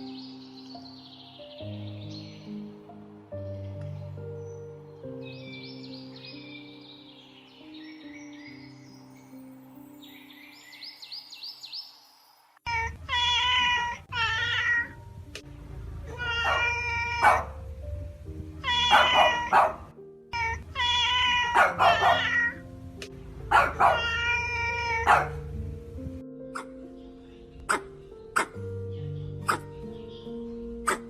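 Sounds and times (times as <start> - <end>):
background music: 0.0 - 11.8, 12.7 - 31.0
cat meowing: 12.7 - 15.0, 16.0 - 17.6, 18.4 - 22.6, 23.5 - 25.5.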